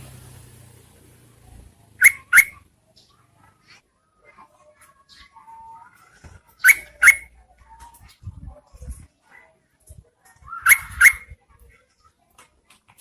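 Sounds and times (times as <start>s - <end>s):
bird calling sharp rising notes: 2.0s - 2.6s, 6.6s - 7.3s, 10.6s - 11.3s
faint whistled bird notes: 2.0s - 2.6s, 6.6s - 7.4s, 10.4s - 11.4s.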